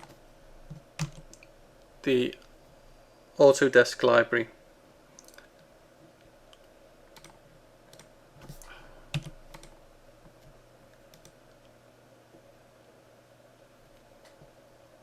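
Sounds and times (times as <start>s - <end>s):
computer keyboard and mouse clicks: 0.0s - 1.5s, 6.5s - 11.7s.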